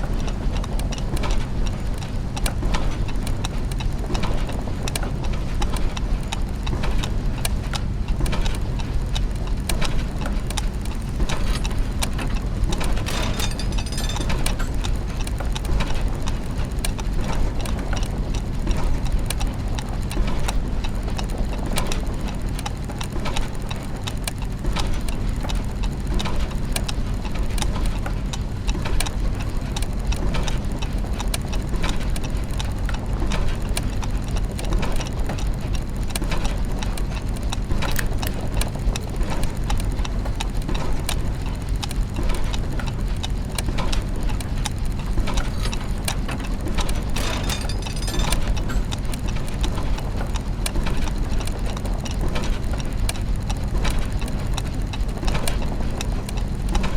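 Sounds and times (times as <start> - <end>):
clockwork ticks and clicks: 0.0 - 56.9
low mechanical hum: 0.0 - 56.9
mechanism rattle: 10.2 - 15.5, 44.3 - 49.6.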